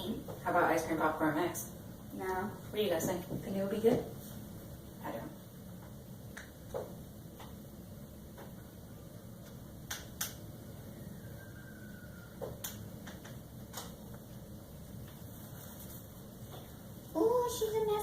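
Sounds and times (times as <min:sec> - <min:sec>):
low room noise: 0:00.0 - 0:18.0.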